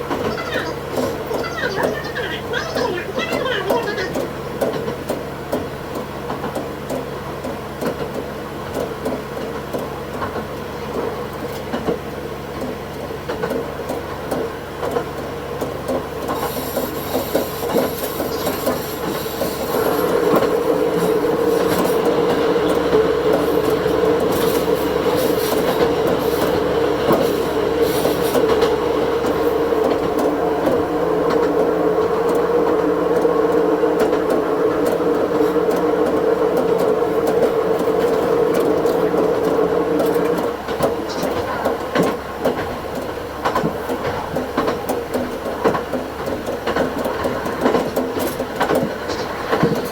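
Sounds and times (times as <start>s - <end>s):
diesel railcar engine running: 0.0s - 49.9s
wheel clicks over rails: 11.4s - 49.9s
high wheel squeal: 16.3s - 22.2s.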